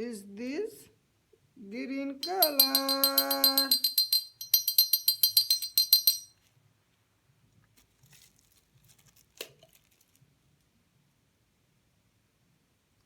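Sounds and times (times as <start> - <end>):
rapid metallic jingling: 2.2 - 6.3.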